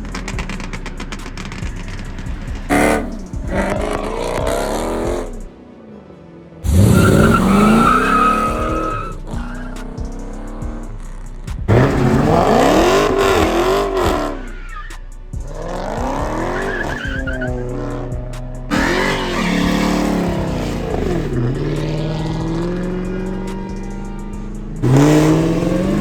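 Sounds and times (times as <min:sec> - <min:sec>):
car engine revving: 0:00.0 - 0:05.6, 0:06.6 - 0:26.0
tire noise hiss: 0:06.6 - 0:26.0.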